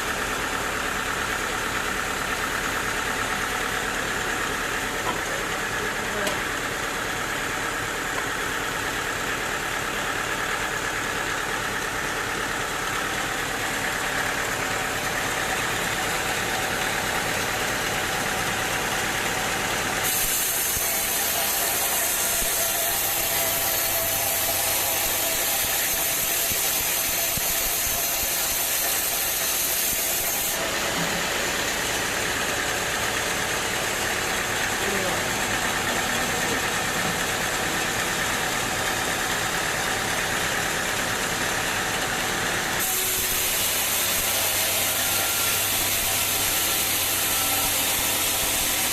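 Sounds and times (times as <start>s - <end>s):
sawmill machinery humming: 0.0s - 48.9s
loud high hiss: 20.0s - 30.2s.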